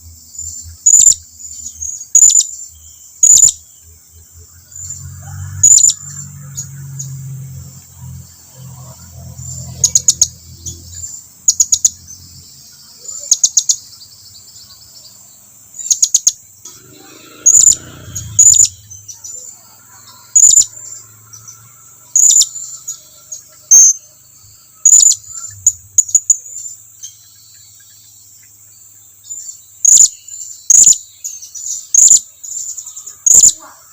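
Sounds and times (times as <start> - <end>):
parrot chirping: 0.9 - 1.2, 2.1 - 2.5, 3.2 - 3.6, 17.0 - 21.5, 24.7 - 26.5, 33.3 - 33.7.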